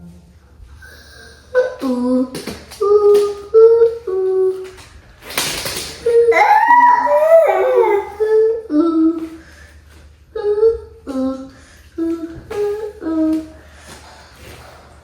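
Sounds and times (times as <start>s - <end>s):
child humming: 6.3s - 9.0s.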